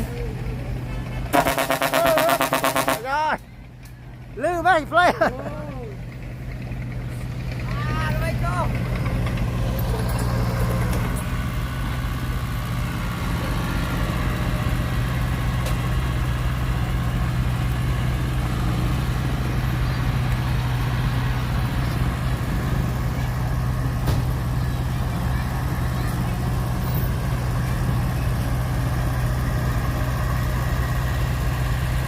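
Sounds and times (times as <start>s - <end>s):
heavy diesel engine running: 0.0s - 32.0s.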